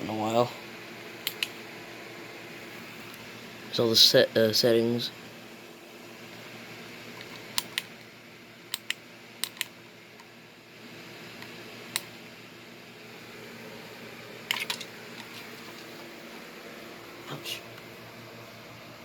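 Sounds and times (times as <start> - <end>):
low room hum: 0.0 - 19.0
sharp clicks: 1.2 - 1.6, 7.6 - 8.0, 8.7 - 9.7.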